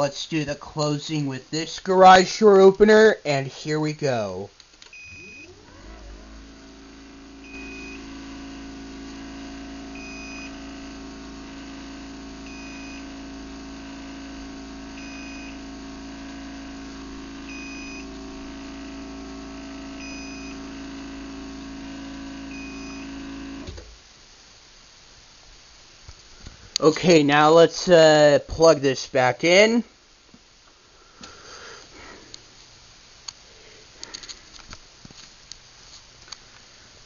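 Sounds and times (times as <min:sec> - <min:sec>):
garage door opener motor hum: 0:04.9 - 0:24.0.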